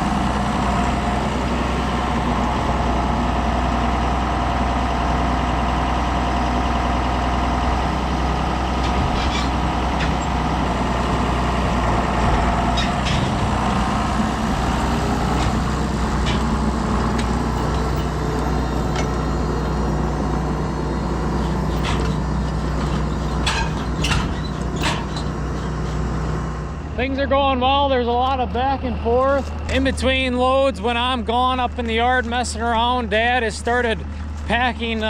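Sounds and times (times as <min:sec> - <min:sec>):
tractor engine running: 0:00.0 - 0:35.0
sharp clanks and knocks: 0:08.8 - 0:10.9, 0:11.7 - 0:13.8, 0:15.2 - 0:19.3, 0:21.4 - 0:26.0.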